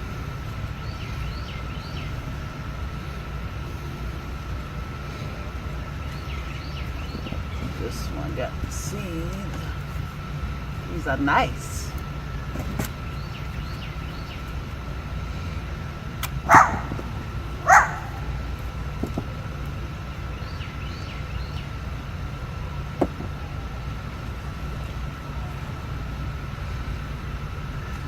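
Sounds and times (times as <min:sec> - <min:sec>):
steady low hum: 0:00.0 - 0:28.0
dog barking: 0:16.5 - 0:18.3.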